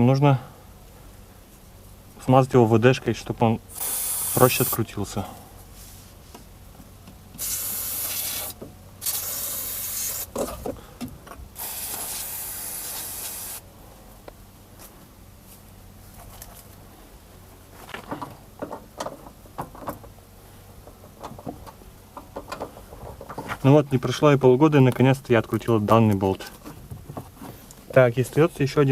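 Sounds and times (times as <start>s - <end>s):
aerosol can spraying: 3.8s - 4.8s, 7.4s - 10.3s, 11.6s - 13.6s.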